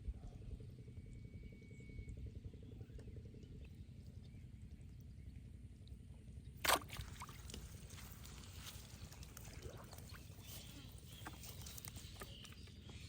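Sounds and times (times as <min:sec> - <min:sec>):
steady low rumble: 0:00.0 - 0:13.0
splash in water: 0:06.6 - 0:08.4
faint water trickling: 0:06.7 - 0:13.0.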